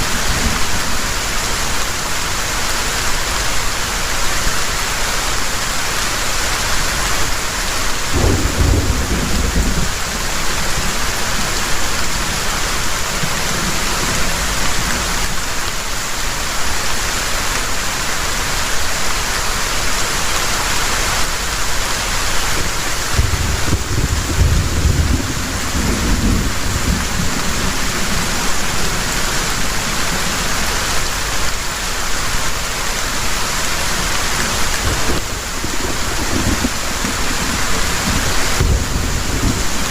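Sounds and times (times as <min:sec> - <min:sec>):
heavy rain pouring: 0:00.0 - 0:39.9
thunder rolling: 0:08.1 - 0:11.0, 0:23.1 - 0:30.3, 0:34.6 - 0:39.9.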